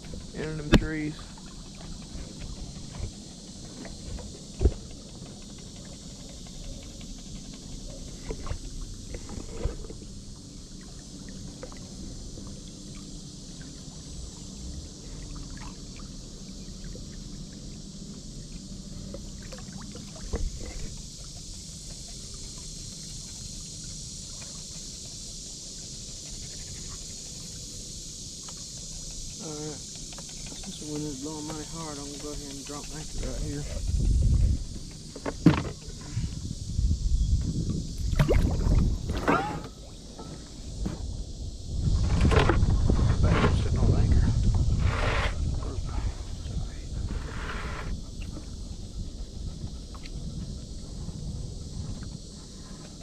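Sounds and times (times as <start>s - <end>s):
high hiss: 0.0s - 6.8s, 7.8s - 53.0s
trolling motor humming: 0.0s - 36.7s
knocks against boat: 2.0s - 5.9s, 35.1s - 36.0s, 38.0s - 41.2s.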